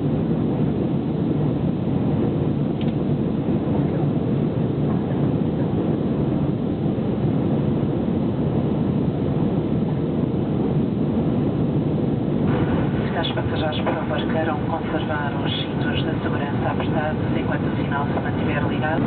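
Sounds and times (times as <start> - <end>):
jet engines roaring in cabin: 0.0 - 19.0
rushing air: 10.8 - 16.4.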